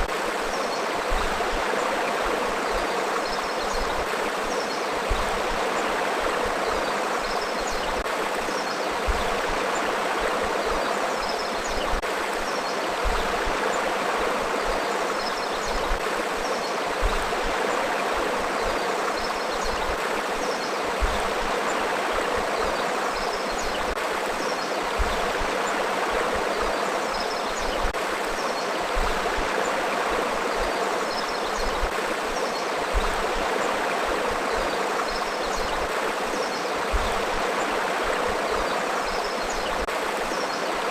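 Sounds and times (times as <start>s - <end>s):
river water flowing over rocks: 0.0s - 40.9s.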